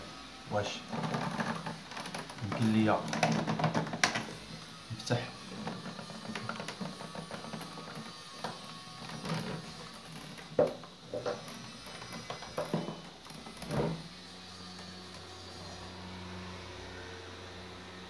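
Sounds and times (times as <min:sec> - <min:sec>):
screwdriver clicking and scraping: 0:05.4 - 0:14.1.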